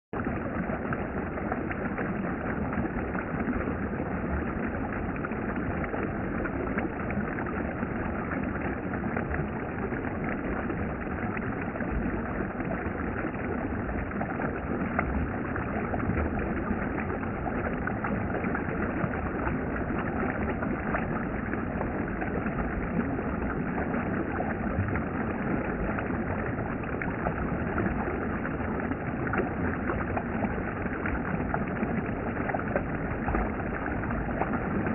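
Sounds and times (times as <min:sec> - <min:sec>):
stream flowing over rocks: 0:00.2 - 0:34.9.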